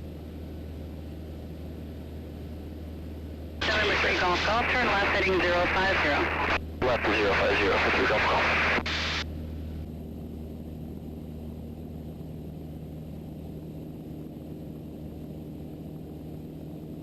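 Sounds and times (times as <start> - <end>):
aircraft engine and propeller droning: 0.0 - 17.0.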